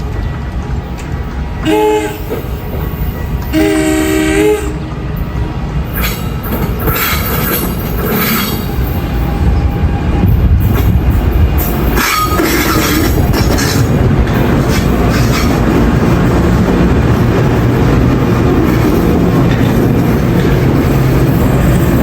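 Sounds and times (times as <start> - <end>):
train rumbling in: 0.0 - 22.0
train horn blasts: 1.6 - 2.4, 3.2 - 5.0, 6.8 - 10.4
wheel or brake squeal: 6.8 - 9.0.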